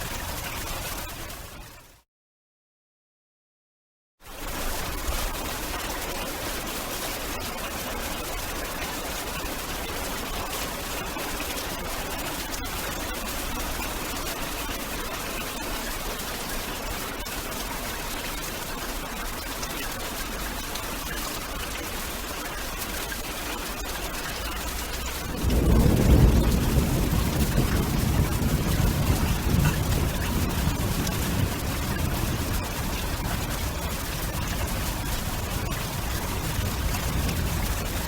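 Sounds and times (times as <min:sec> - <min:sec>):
heavy rain hissing: 0:24.5 - 0:38.0
deep thunder rumble: 0:24.9 - 0:38.0.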